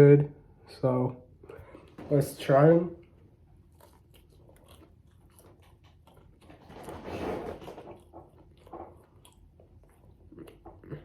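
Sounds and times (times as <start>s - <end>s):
person chewing with mouth open: 3.0s - 11.0s.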